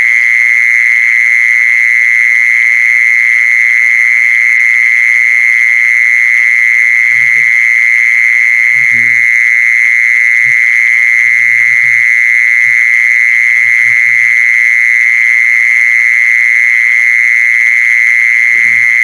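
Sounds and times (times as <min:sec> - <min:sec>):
faint low croaks: 0:08.7 - 0:09.3, 0:13.5 - 0:14.4, 0:18.5 - 0:19.0.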